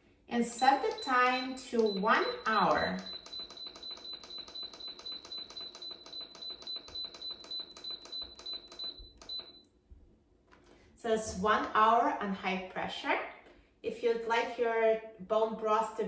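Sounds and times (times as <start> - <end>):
control panel beeping rapidly: 0.5 - 9.6.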